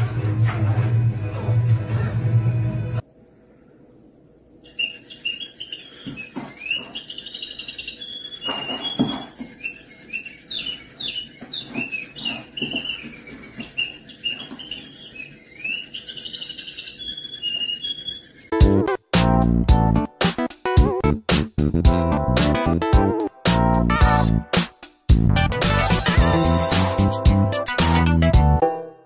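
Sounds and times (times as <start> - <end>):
high-pitched chirping: 4.6 - 18.6.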